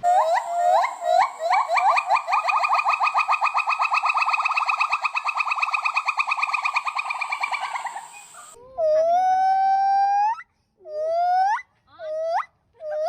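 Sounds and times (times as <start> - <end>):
monkey trilling chirps: 0.0 - 9.8
monkey wailing call: 0.0 - 10.4.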